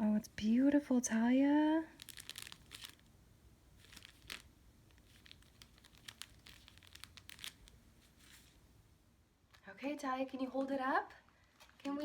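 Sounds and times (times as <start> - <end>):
dry leaves crinkling on tape: 1.9 - 3.1, 3.8 - 8.6.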